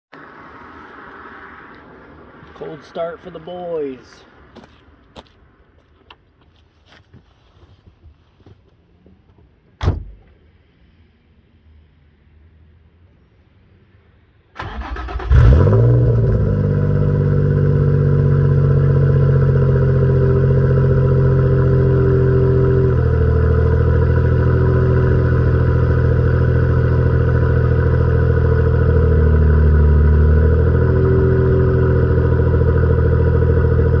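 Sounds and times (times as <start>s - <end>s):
car engine idling: 14.6s - 34.0s.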